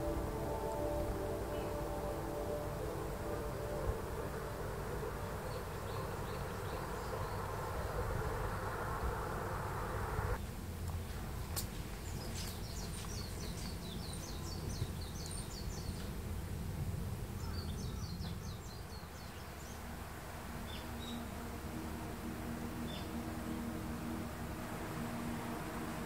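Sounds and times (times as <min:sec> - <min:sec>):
buzzing hum: 0:00.0 - 0:10.4, 0:19.0 - 0:26.0
steady low rumble: 0:00.0 - 0:26.0.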